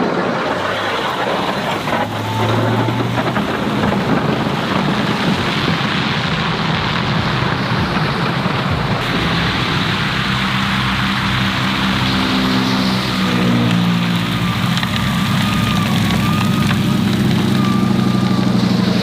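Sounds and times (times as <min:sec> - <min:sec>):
snow-removal vehicle engine running: 0:00.0 - 0:19.0
low hum: 0:08.7 - 0:19.0.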